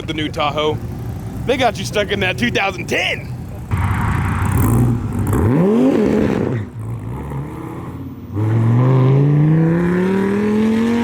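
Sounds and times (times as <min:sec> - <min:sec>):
car engine revving: 0:03.4 - 0:11.0
car accelerating away: 0:03.7 - 0:11.0.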